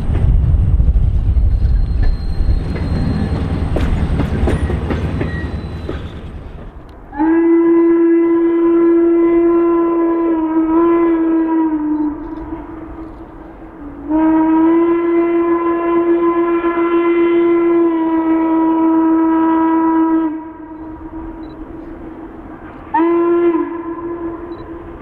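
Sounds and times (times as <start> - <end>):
steam locomotive whistle: 7.1 - 13.0, 13.8 - 21.5, 22.9 - 25.0.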